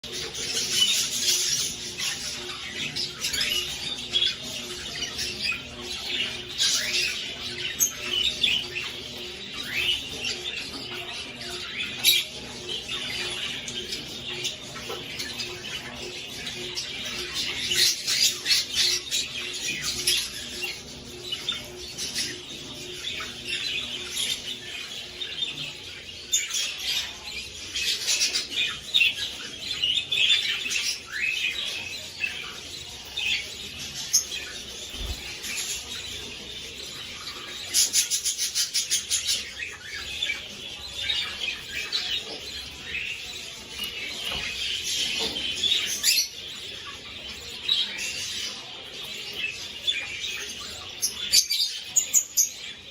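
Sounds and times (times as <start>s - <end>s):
budgerigars chattering and chirping: 0.0s - 52.9s.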